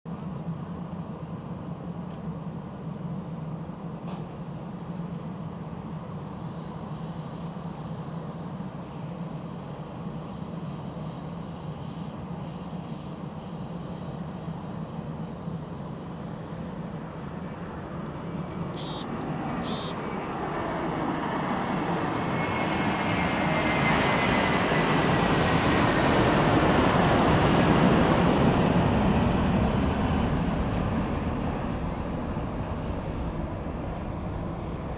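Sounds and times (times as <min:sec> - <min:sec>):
jet engines roaring: 0:04.0 - 0:34.9
high whine: 0:18.4 - 0:20.5
short hisses: 0:18.8 - 0:20.0.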